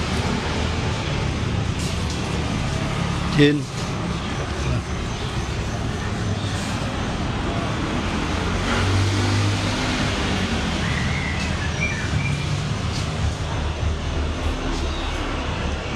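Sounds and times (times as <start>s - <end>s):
road noise: 0.0s - 15.9s.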